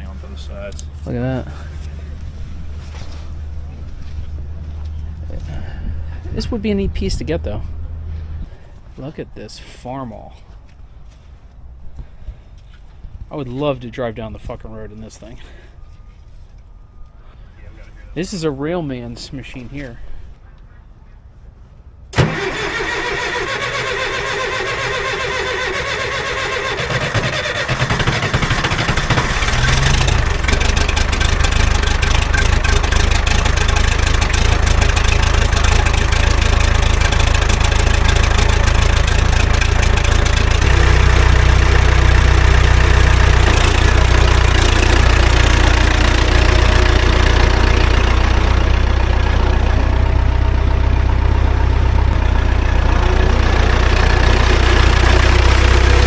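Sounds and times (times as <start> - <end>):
engine starting and running: 0.0 - 8.8, 22.1 - 56.0.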